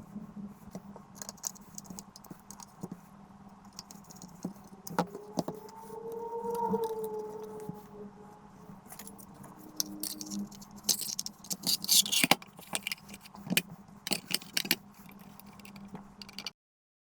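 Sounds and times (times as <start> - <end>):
steady low hum: 0.0 - 16.5
small hard objects clinking: 8.9 - 16.5.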